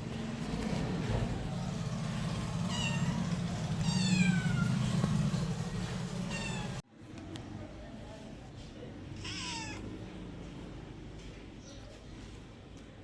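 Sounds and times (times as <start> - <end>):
cat meowing: 2.6 - 4.9, 6.2 - 6.8, 9.2 - 9.9.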